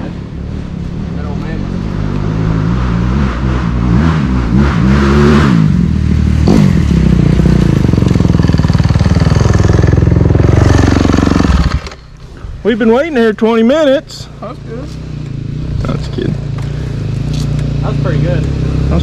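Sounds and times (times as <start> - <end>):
dirt bike engine revving: 0.4 - 12.1, 14.9 - 19.0.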